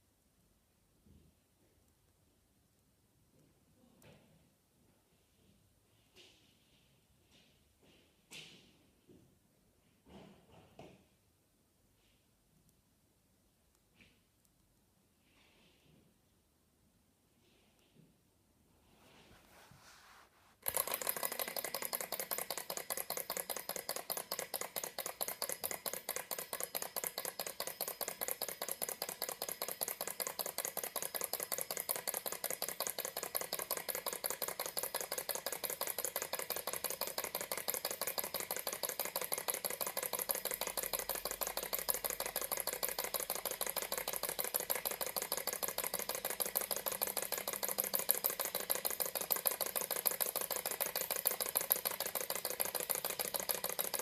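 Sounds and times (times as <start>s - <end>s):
model engine rattling tick: 20.6s - 54.0s.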